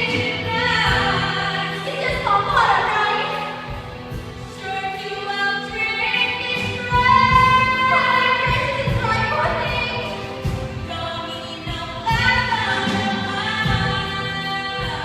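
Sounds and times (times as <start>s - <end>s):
instrumental accompaniment: 0.0s - 15.0s.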